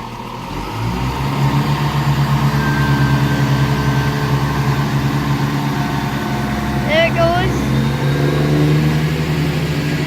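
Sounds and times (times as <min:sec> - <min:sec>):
train diesel engines pulsing: 0:00.0 - 0:10.0.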